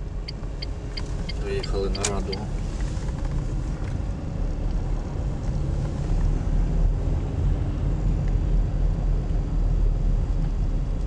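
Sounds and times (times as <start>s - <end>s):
car engine running: 0.0s - 3.9s
road noise: 0.0s - 8.0s.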